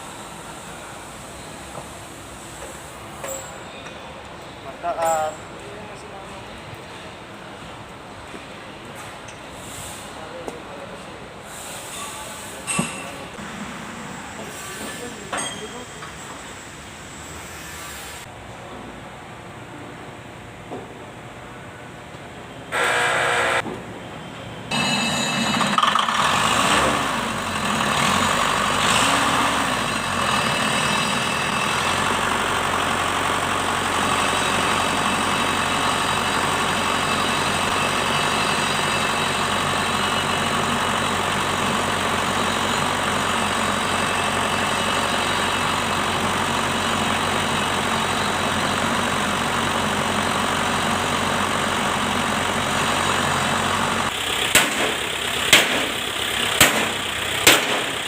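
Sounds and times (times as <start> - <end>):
tractor diesel engine running: 22.7 - 23.6, 24.7 - 58.0.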